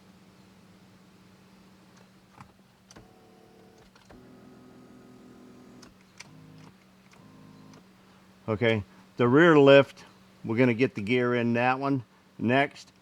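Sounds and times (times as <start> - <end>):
seat motor whine: 2.9 - 7.8.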